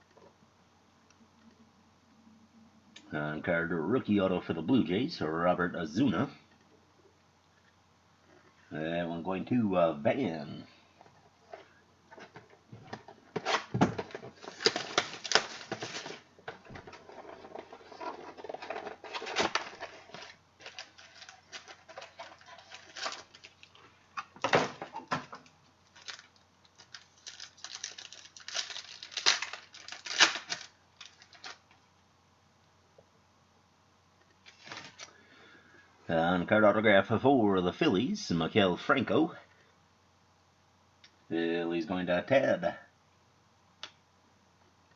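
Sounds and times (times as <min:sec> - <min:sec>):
cards and packaging clicking and rustling: 0:11.5 - 0:31.8, 0:34.4 - 0:35.1.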